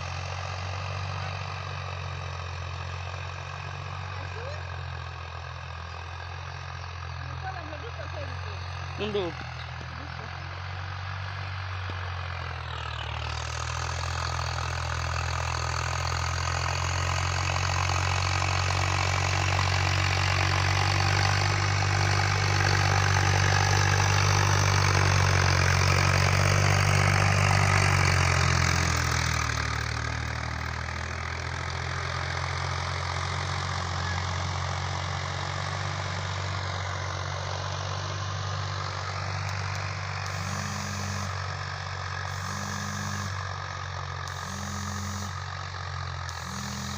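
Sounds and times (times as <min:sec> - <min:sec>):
diesel tractor engine running: 0:00.0 - 0:46.9.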